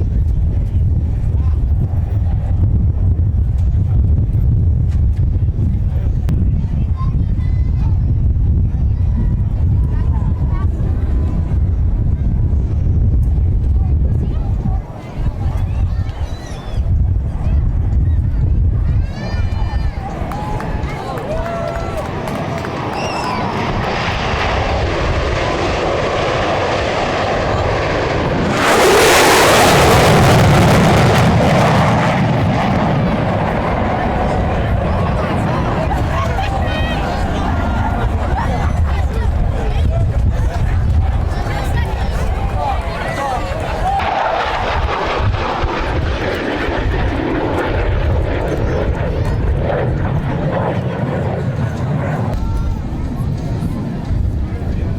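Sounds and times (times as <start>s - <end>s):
aircraft flying past: 18.9s - 54.9s.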